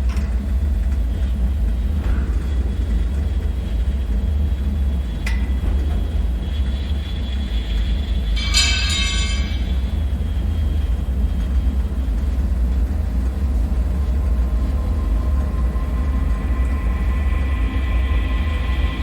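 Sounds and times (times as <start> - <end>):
deep steady rumble: 0.0 - 19.0
high thin tonal drone: 6.8 - 10.6, 14.7 - 19.0
metallic ringing screech: 8.4 - 10.1.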